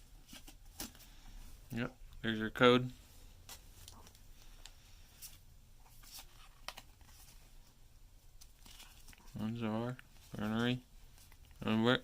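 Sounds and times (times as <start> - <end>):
trading cards rustling and clicking: 3.5 - 7.4, 8.4 - 11.7.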